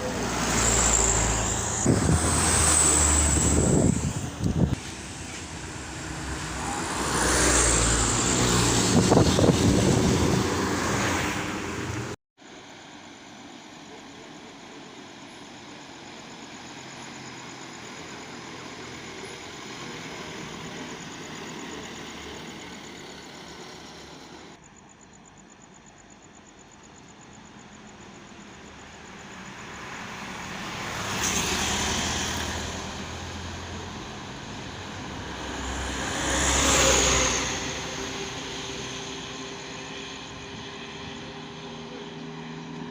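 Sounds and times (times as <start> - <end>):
heavy vehicle passing: 0.0 - 12.2
vehicle passing: 0.0 - 12.2, 29.2 - 42.9
road noise: 0.0 - 42.9.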